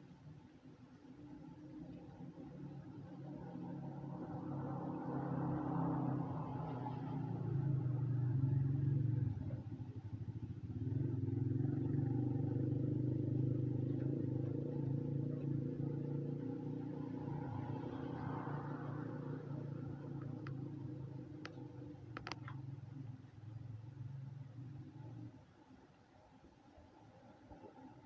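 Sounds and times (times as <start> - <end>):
vehicle engine running: 6.2 - 25.1.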